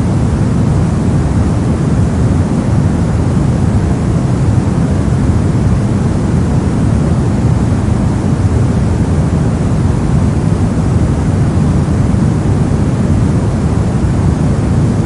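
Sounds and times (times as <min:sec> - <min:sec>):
deep white noise hiss: 0:00.0 - 0:15.0.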